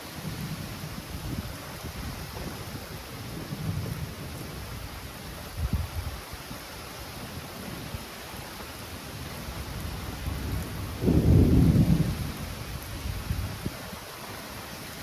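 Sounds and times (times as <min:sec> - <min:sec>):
steady rain: 0:00.0 - 0:15.0
rolling thunder: 0:00.2 - 0:04.7, 0:09.8 - 0:13.8.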